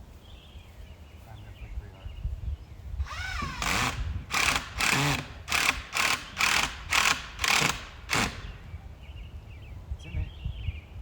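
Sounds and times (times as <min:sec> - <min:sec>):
power drill driving screw: 0:03.0 - 0:08.6.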